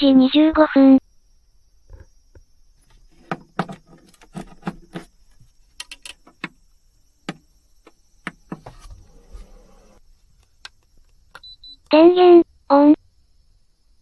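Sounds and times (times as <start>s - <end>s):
sharp clicks and light knocks: 2.0s - 6.6s, 7.3s - 8.9s.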